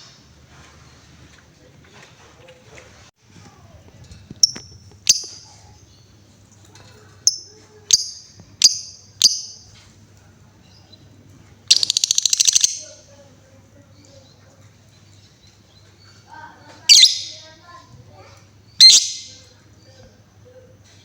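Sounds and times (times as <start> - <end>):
bird high chirps: 4.4 - 6.2, 7.2 - 9.7, 11.7 - 13.1, 15.1 - 17.7, 18.6 - 20.1.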